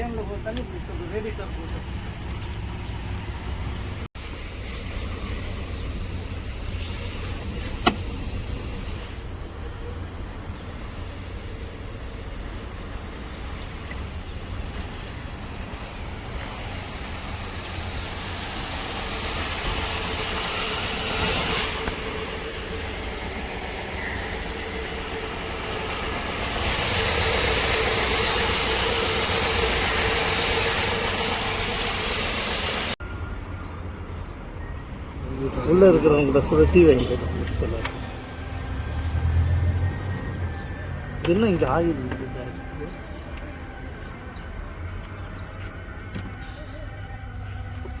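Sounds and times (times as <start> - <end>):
car engine running: 0.0 - 33.0.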